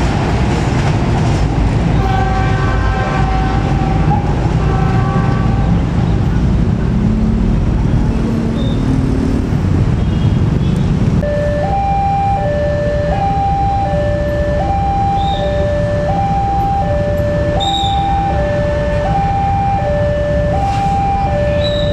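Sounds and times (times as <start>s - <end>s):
train rumbling: 0.0s - 21.9s
two-tone crossing alarm: 11.2s - 21.9s.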